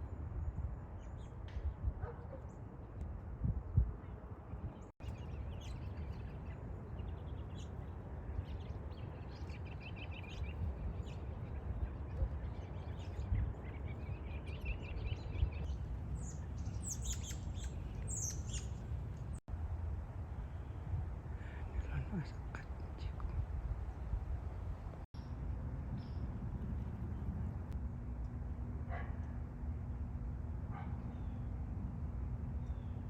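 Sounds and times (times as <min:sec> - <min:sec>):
steady low rumble: 0:00.0 - 0:33.0
small birds chirping: 0:04.5 - 0:19.4.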